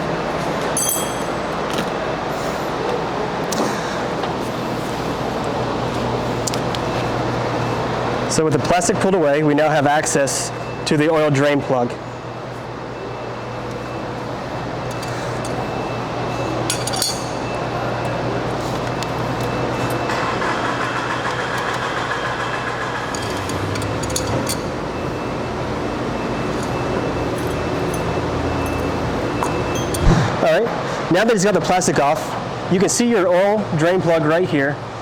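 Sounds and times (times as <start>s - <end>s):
shop background hum and hiss: 0.0s - 35.0s
light metallic clinks: 0.8s - 1.5s, 16.6s - 18.2s, 26.5s - 30.1s.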